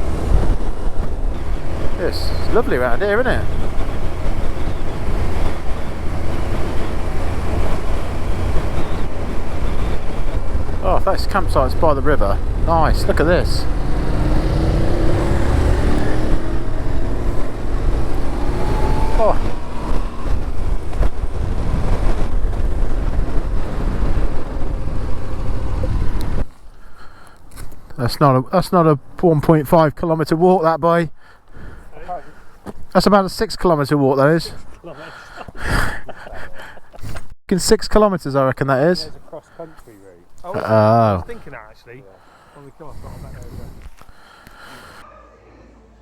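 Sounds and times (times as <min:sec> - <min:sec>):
motorcycle engine rumble: 0:00.0 - 0:27.9
wind buffeting microphone: 0:00.0 - 0:27.9, 0:39.1 - 0:45.0.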